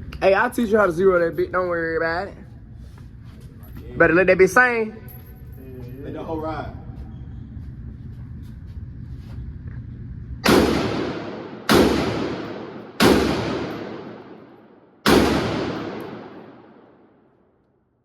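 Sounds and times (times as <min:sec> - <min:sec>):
rifle shots: 0:10.4 - 0:17.1.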